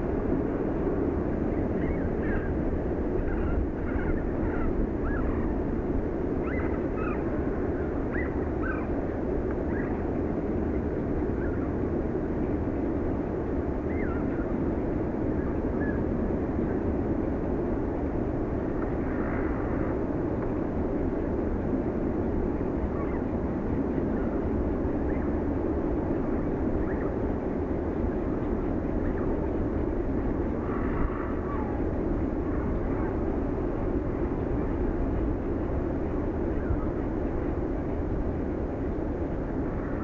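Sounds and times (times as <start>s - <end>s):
low outdoor rumble: 0.0s - 40.0s
faint bird chirps: 6.4s - 7.2s.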